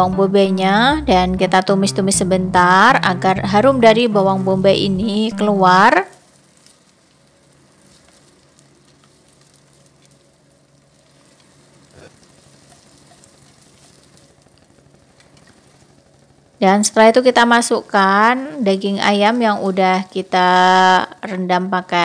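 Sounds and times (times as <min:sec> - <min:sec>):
vegetables sizzling faintly in oil: 0:00.0 - 0:22.0
wooden spatula stirring: 0:05.6 - 0:16.0.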